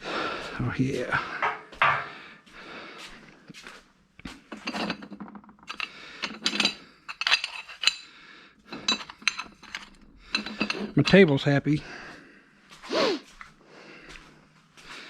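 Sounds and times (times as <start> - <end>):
metal brackets clinking: 4.5 - 8.1, 8.7 - 11.6.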